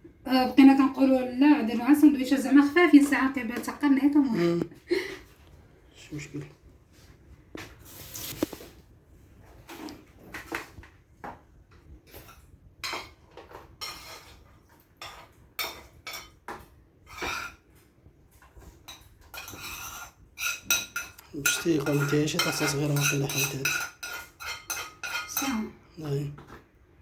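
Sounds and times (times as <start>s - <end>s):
dishes and cutlery clinking: 12.1s - 17.7s, 18.8s - 26.6s.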